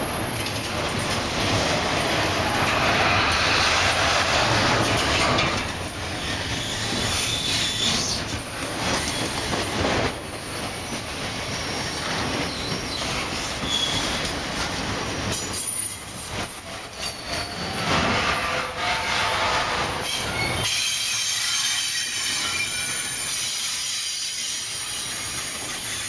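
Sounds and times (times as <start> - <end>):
freight train wheels rumbling: 0.0 - 26.0
high-pitched wheel squeals: 16.1 - 23.2.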